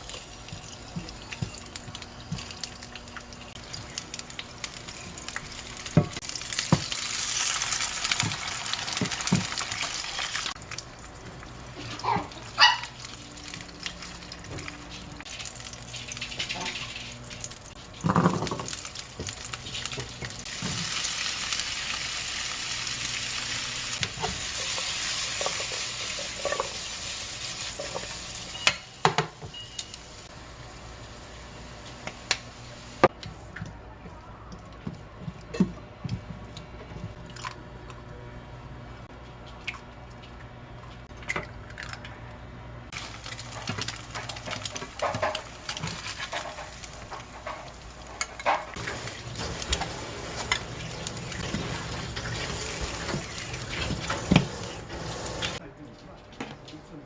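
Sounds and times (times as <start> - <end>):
food sizzling in a pan: 0.0 - 10.6, 18.1 - 33.0.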